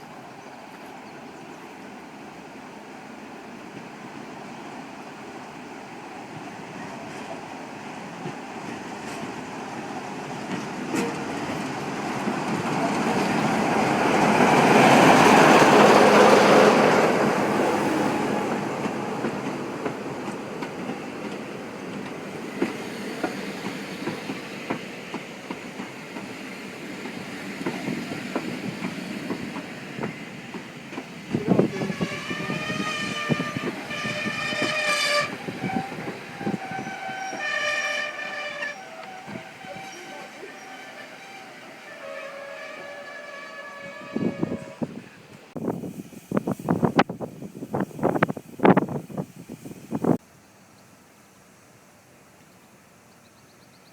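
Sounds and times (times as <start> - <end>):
train passing: 0.0 - 50.2
locomotive horn: 31.5 - 45.0.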